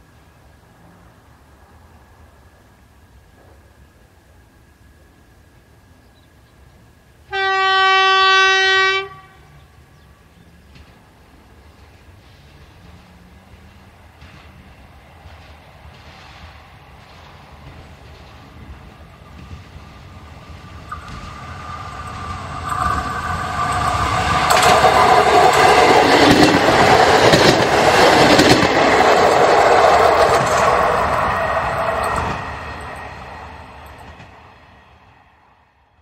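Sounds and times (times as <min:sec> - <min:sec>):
railbus engine hum: 0:00.0 - 0:36.0
train wheel clicks: 0:11.7 - 0:34.4.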